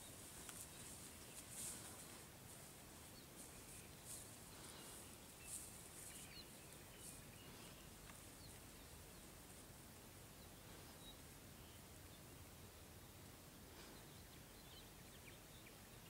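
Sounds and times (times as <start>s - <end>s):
distant bird chirps: 0.0s - 9.6s.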